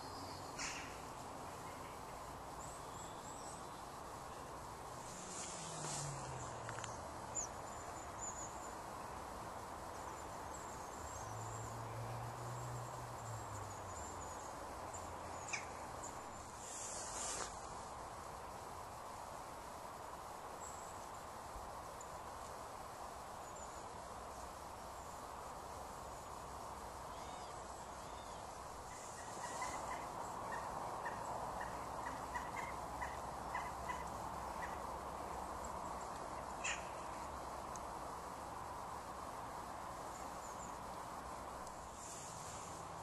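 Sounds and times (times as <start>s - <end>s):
outdoor background hiss: 0.0s - 43.0s.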